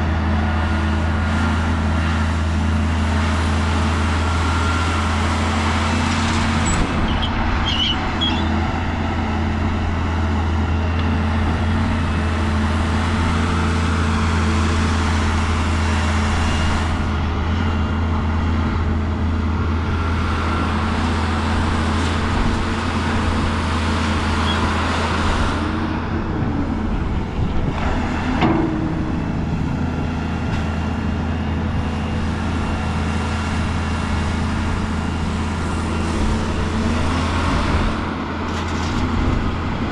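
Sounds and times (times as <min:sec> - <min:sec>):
heavy machinery diesel engine: 0:00.0 - 0:39.9
knocks and clanks: 0:28.3 - 0:29.0.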